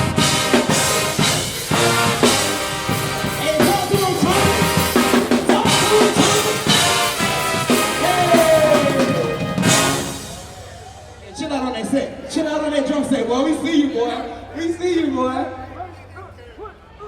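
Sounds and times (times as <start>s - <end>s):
drum kit and percussion: 0.0s - 11.2s
sustained horn notes: 0.0s - 11.2s.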